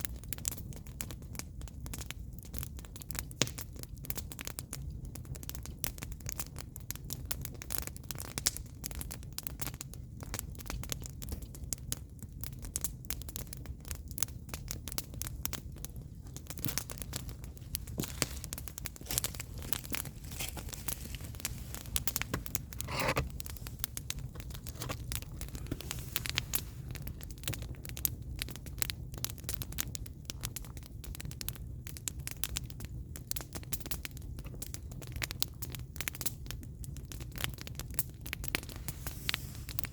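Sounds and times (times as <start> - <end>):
firewood crackling and popping: 0.0 - 39.9
low fire rumble: 0.0 - 39.9.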